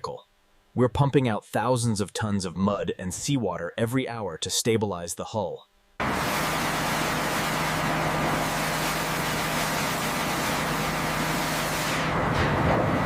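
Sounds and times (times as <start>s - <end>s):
mechanical drone with low hum: 6.0s - 13.0s.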